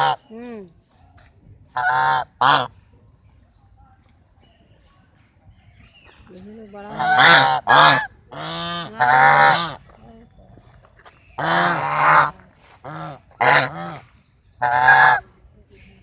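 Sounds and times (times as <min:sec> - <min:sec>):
geese honking: 0:00.0 - 0:00.2, 0:01.7 - 0:02.8, 0:06.6 - 0:10.2, 0:11.4 - 0:15.2.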